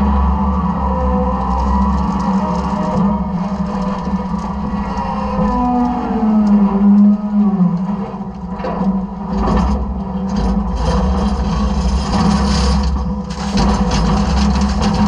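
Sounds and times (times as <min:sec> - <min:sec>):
trash crunching and scraping: 0:09.3 - 0:15.0.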